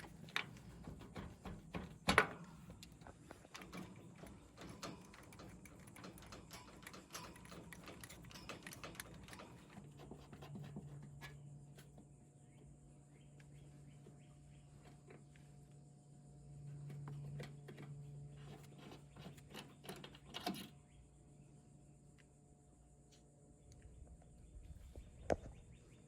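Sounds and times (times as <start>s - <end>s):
clicks and knocks: 0.0s - 11.4s
low steady hum: 0.0s - 26.0s.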